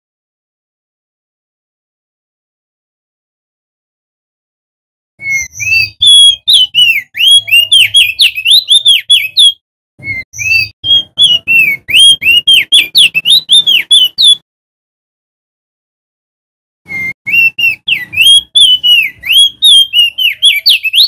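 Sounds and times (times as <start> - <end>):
bird singing whistled notes: 5.2 - 14.4, 16.9 - 21.0.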